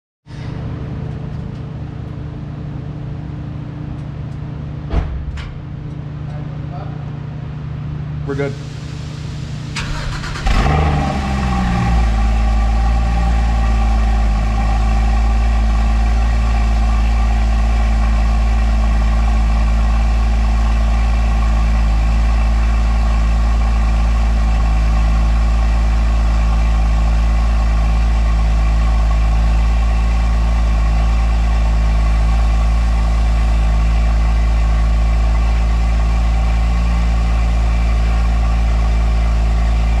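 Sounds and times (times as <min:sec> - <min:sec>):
car engine cold idle: 0:08.2 - 0:40.0
engine start flare: 0:08.6 - 0:11.8.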